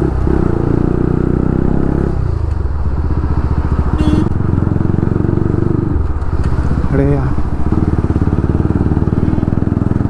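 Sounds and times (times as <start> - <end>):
motorcycle engine running: 0.0 - 10.0
vehicle horn beep: 3.9 - 4.4.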